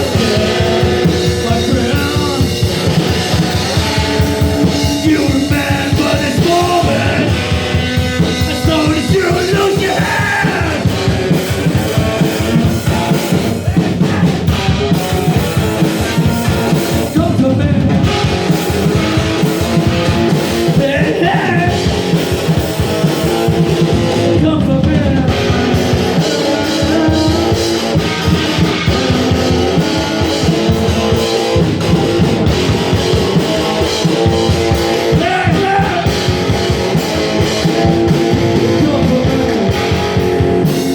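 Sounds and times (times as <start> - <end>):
person singing: 0.0 - 7.6, 8.2 - 18.2, 20.4 - 21.9, 23.2 - 29.6, 34.7 - 36.6, 37.7 - 40.0
drum kit: 0.0 - 40.9
electric guitar: 0.0 - 40.9.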